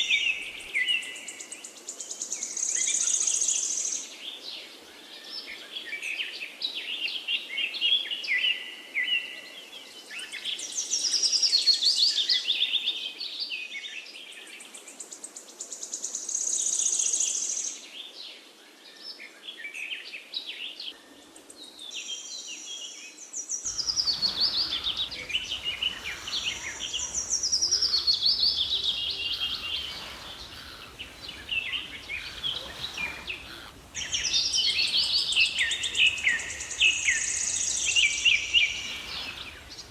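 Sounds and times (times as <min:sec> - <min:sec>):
birds chirping and singing: 0:23.7 - 0:39.9.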